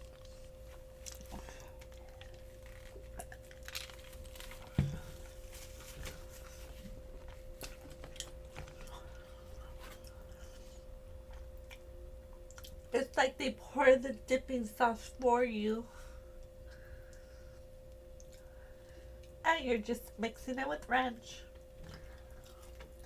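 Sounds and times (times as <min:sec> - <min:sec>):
chewing crispy fried chicken: 0:00.0 - 0:04.8, 0:11.2 - 0:12.9, 0:21.7 - 0:23.0
faint steady hum: 0:00.0 - 0:23.0.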